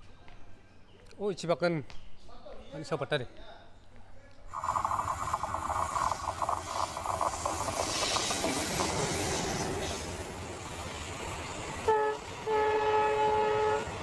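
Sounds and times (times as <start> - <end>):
train wheels on rails: 4.5 - 14.0
locomotive horn: 11.8 - 14.0.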